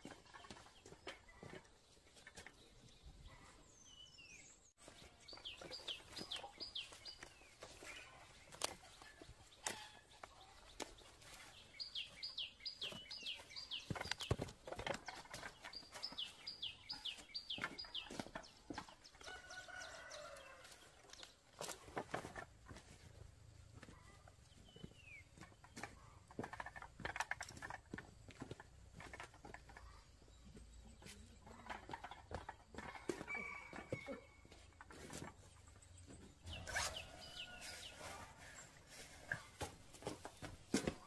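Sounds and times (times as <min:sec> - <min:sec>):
bird chirping: 0:00.0 - 0:21.4, 0:35.5 - 0:39.6.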